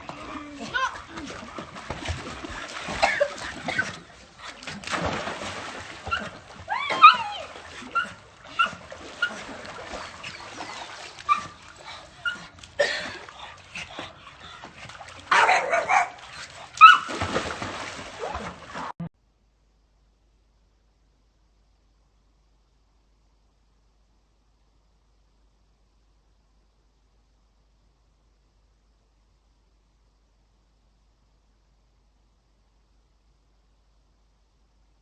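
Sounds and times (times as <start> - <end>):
dog whining and yipping: 6.1 - 12.5, 16.8 - 17.2.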